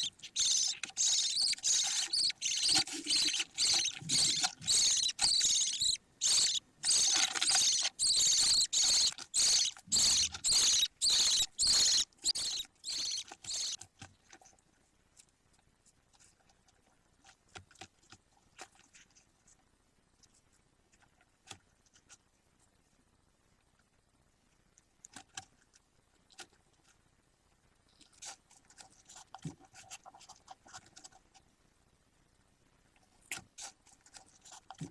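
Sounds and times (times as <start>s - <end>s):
bird chicks cheeping: 0.0s - 13.8s
faint clicks and scratches: 0.0s - 31.6s, 32.9s - 34.9s.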